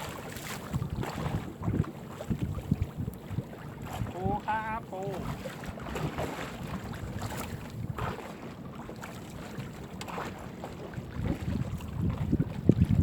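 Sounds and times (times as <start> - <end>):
wind buffeting microphone: 0.0 - 8.5, 9.4 - 13.0.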